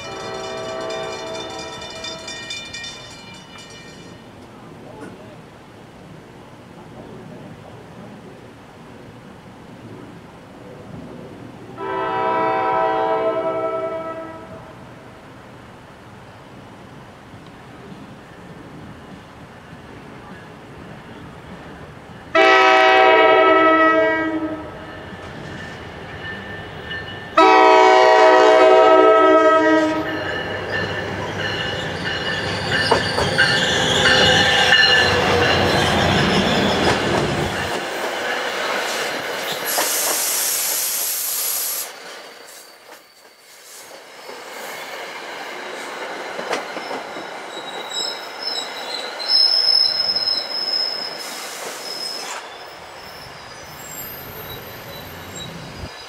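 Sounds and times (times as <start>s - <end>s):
train horn blasts: 0.0s - 2.3s, 11.8s - 14.8s, 22.3s - 24.8s, 27.4s - 30.2s
train wheels rumbling on rails: 0.0s - 5.4s, 24.4s - 56.0s
high wheel squeal: 30.0s - 37.8s, 38.7s - 45.0s, 46.6s - 56.0s
brief hiss: 38.8s - 44.7s, 51.1s - 52.5s.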